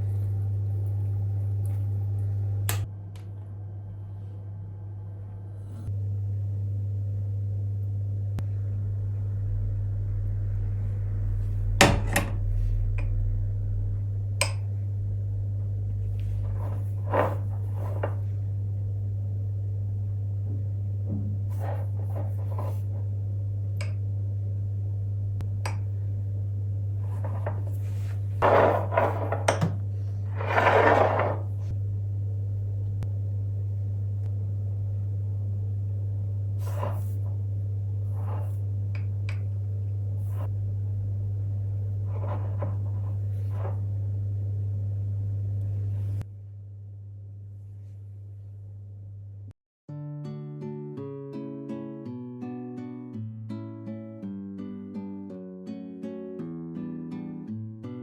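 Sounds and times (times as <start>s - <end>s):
steady low hum: 0.0s - 49.6s
scraping rustle: 42.0s - 43.9s.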